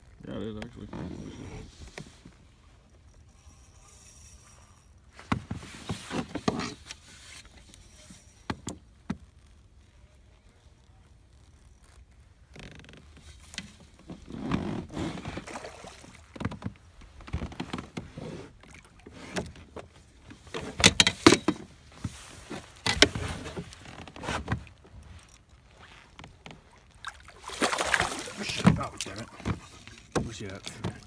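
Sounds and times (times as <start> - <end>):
gear knocking and rustling on kayak: 0.0 - 31.0
water noise: 15.2 - 17.3, 18.5 - 31.0.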